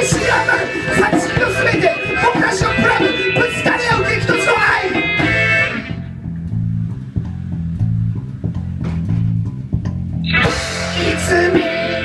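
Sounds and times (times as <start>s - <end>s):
bass guitar low riff: 0.0s - 12.0s
live band music: 0.0s - 12.0s.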